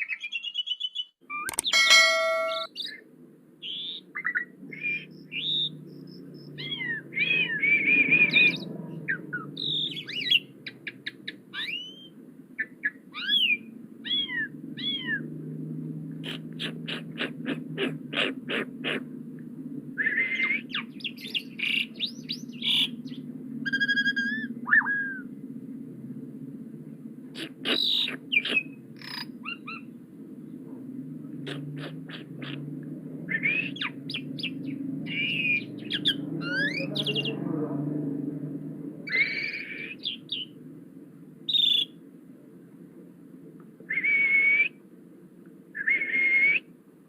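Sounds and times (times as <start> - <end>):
sharp clicking bird notes: 1.5 - 2.7
starling singing: 1.5 - 2.7, 33.3 - 37.4.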